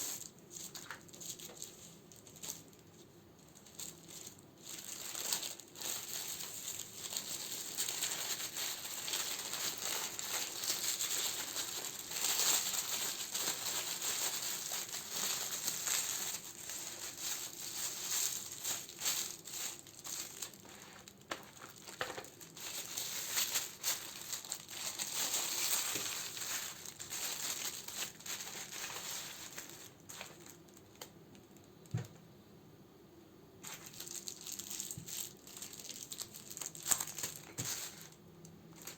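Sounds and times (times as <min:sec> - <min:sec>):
plastic wrapping crinkling: 0:00.0 - 0:32.2, 0:33.6 - 0:38.9.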